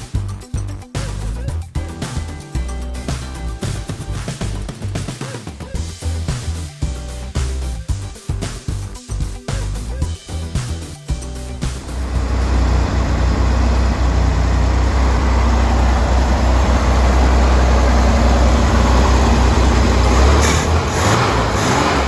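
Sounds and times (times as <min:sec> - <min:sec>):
car engine running: 0:11.5 - 0:22.0.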